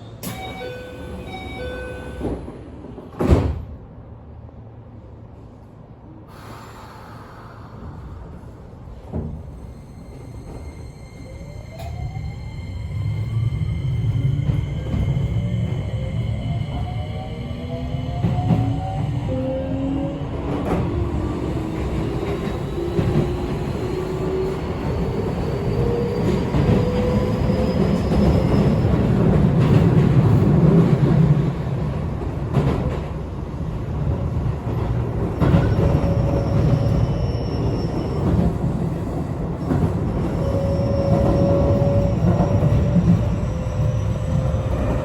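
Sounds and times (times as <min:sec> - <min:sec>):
wheels rumbling on rail: 0:06.9 - 0:45.0.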